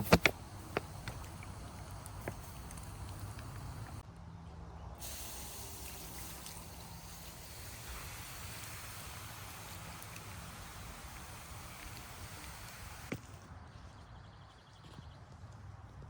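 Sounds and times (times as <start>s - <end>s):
outdoor ambient hiss: 0.0s - 4.1s, 5.0s - 13.6s.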